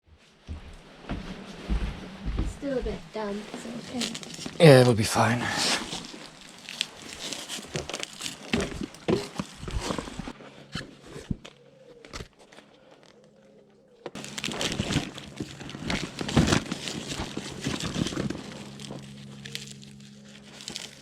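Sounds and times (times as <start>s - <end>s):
material rustling and crinkling: 2.7s - 13.3s, 14.1s - 21.0s.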